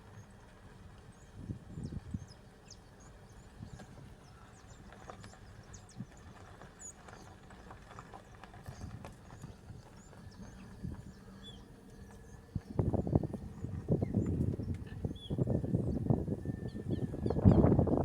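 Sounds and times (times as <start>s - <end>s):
wind on microphone: 1.4s - 2.2s, 12.5s - 18.0s.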